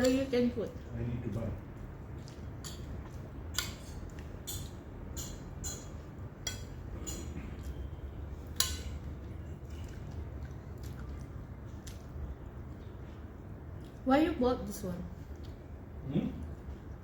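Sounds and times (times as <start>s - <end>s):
low steady hum: 0.0s - 17.0s
cutlery clinking on plates: 3.6s - 7.7s, 8.6s - 9.0s.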